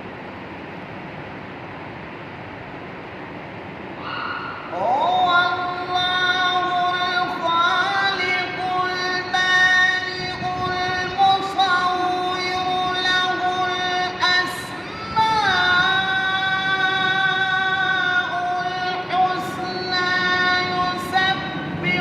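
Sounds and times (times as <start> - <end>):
person chanting recitation: 4.7 - 22.0.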